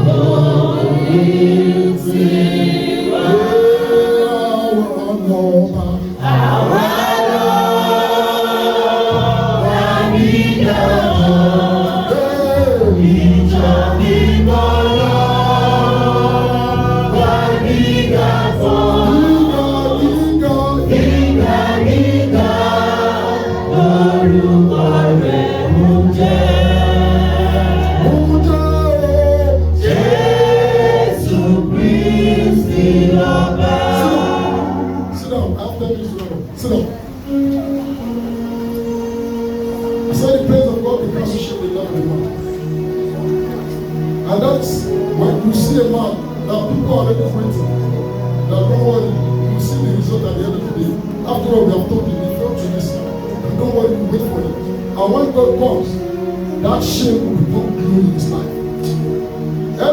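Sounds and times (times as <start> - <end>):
choir and congregation singing: 0.0 - 59.9
low bass notes: 9.1 - 35.7.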